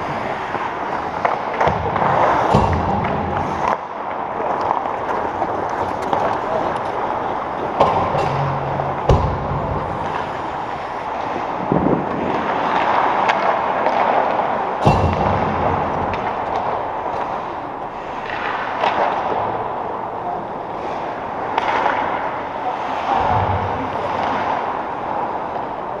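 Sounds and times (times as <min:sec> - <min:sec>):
arena background din: 0:00.0 - 0:12.0, 0:14.7 - 0:18.8
sharp echoing bangs: 0:01.6 - 0:03.8, 0:07.7 - 0:11.6, 0:14.8 - 0:17.8.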